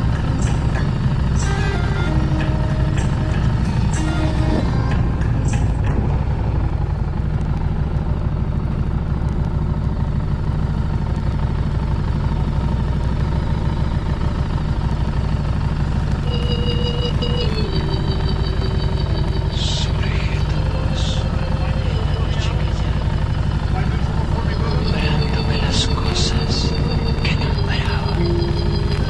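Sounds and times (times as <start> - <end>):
steady high-pitched tone: 0.0 - 7.2, 16.1 - 29.0
motorcycle engine rumbling: 0.0 - 29.0.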